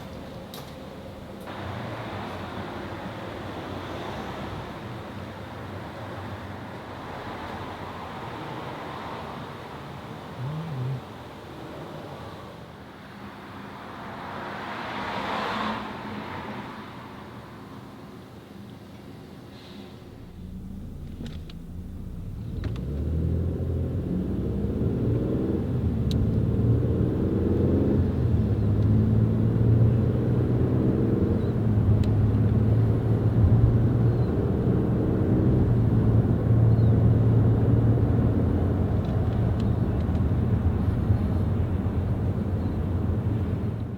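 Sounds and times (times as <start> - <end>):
car engine accelerating and shifting: 10.2 - 11.8, 13.8 - 16.6, 20.0 - 43.9.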